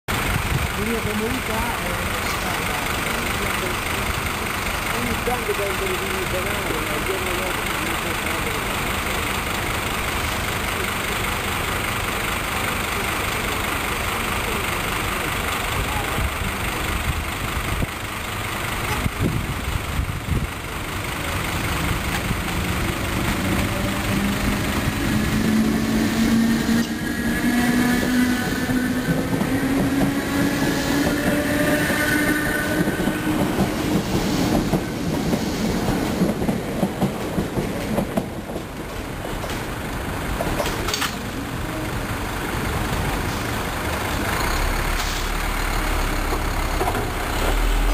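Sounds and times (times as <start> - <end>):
wheels clicking over rail joints: 0.2 - 42.0
electric train motor whine: 21.3 - 34.0.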